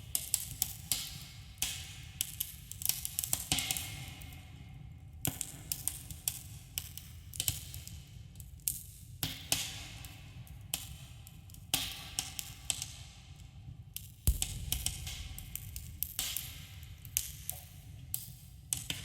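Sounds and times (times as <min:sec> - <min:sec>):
low rumble: 0:14.3 - 0:16.8.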